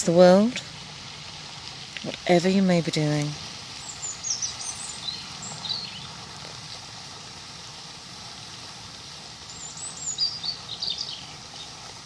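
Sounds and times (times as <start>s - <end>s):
running water rushing: 0.0s - 12.0s
songbird chirps and trills: 1.5s - 6.2s, 9.4s - 11.8s.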